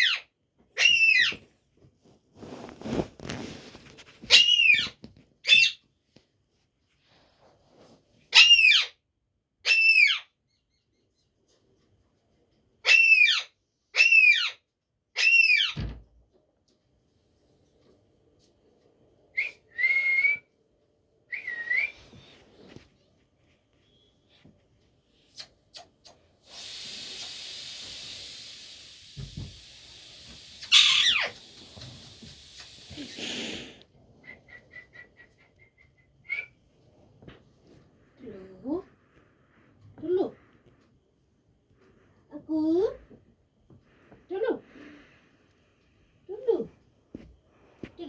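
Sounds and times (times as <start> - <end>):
parrot squawking: 0.0 - 1.4, 4.3 - 5.8, 8.3 - 9.0, 9.6 - 10.3, 12.8 - 14.6, 15.2 - 15.8, 30.6 - 31.4
steady hiss: 26.4 - 33.8.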